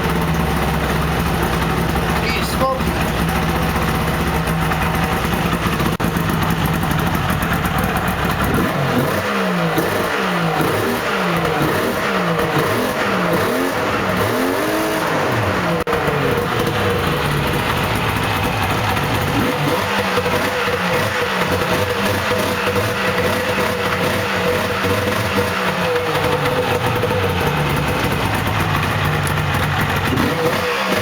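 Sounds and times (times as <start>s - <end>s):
snowmobile engine revving: 0.0s - 6.8s, 8.4s - 31.0s.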